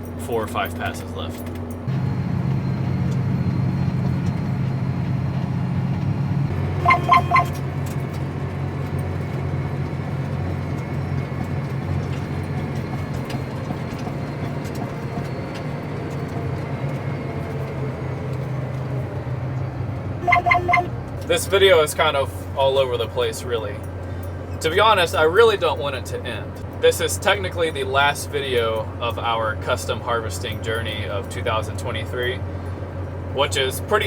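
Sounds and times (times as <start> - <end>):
tractor engine running: 0.0 - 34.0
electronic beeps: 6.8 - 7.6, 20.2 - 20.9.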